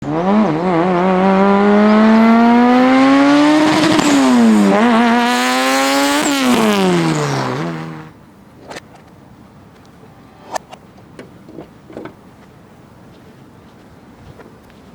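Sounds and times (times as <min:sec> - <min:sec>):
turbocharged car engine revving: 0:00.0 - 0:08.2.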